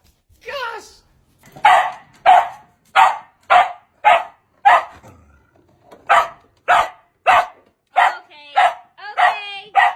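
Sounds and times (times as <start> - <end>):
dog barking: 1.6 - 5.0, 6.0 - 9.9.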